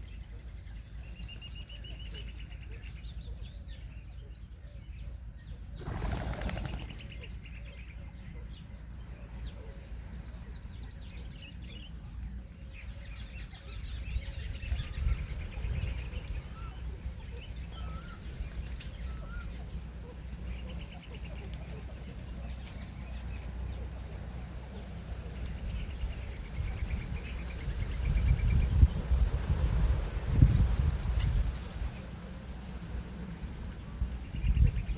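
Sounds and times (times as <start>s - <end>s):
birds chirping and twittering: 0.0s - 34.9s.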